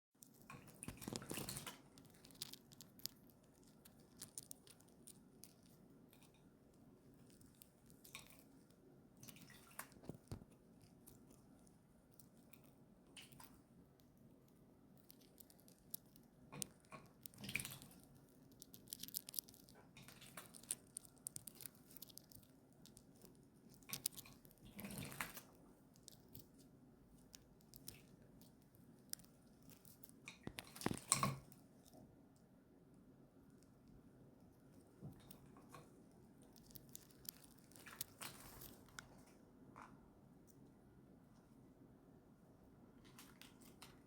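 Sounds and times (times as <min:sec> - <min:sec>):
parrot splashing in water: 0:00.5 - 0:01.9, 0:09.2 - 0:10.4.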